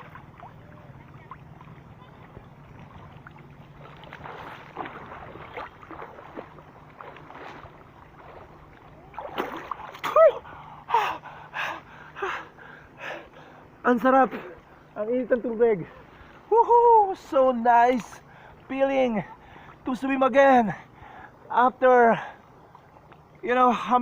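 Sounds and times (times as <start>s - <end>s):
water splashing from swimming: 0.0s - 13.6s, 17.8s - 20.0s
steady low hum: 0.0s - 24.0s.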